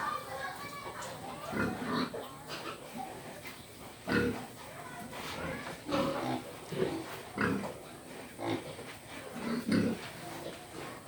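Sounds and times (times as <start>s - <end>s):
pig grunting: 4.0s - 4.5s, 8.4s - 10.1s.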